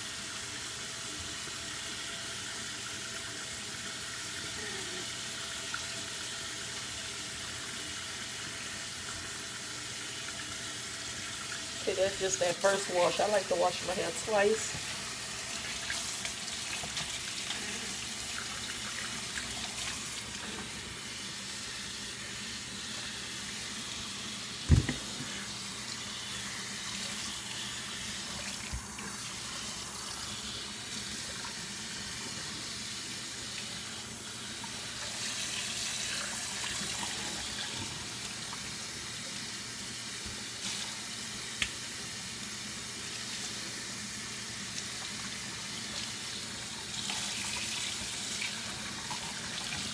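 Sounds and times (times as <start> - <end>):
water running from a tap: 0.0 - 49.9
sharp low thump: 24.7 - 25.1.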